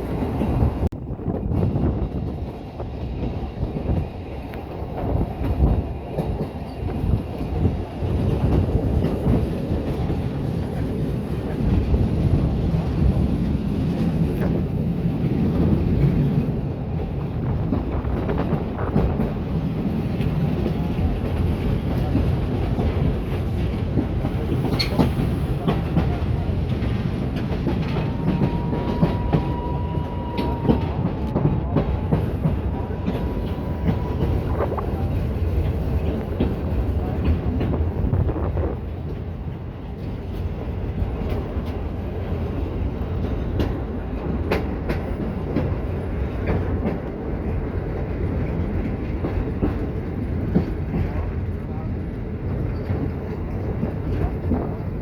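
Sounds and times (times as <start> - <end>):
train rumbling on track: 0.0 - 55.0
wheels clicking over rail joints: 0.2 - 42.0.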